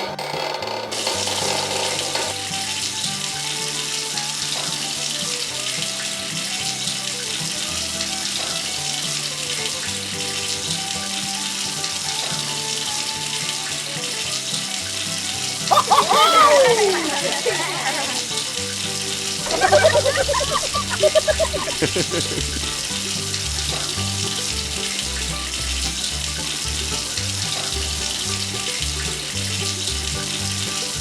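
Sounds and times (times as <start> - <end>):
running water hiss: 2.3 - 31.0
background music with bass: 18.2 - 31.0.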